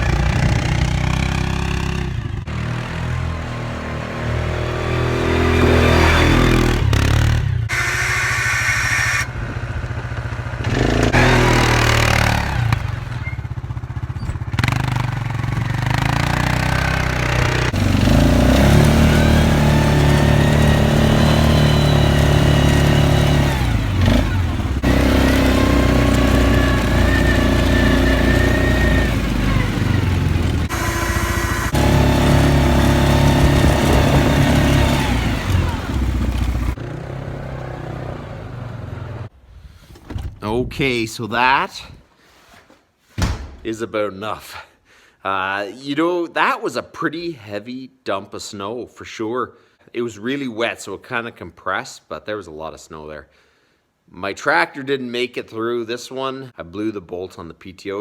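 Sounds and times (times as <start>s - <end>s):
atv engine revving: 0.0s - 39.3s.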